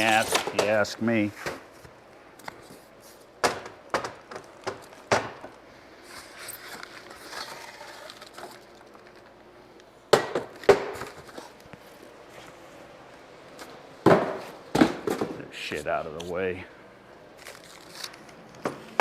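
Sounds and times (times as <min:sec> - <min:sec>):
packaging rustling and scraping: 0:06.0 - 0:09.4, 0:17.4 - 0:18.5.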